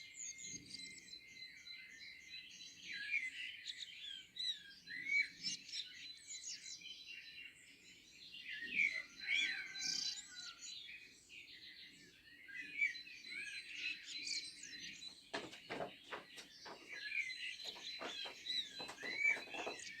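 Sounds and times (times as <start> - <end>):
songbirds singing: 0.0 - 20.0
soft knocks: 15.1 - 20.0.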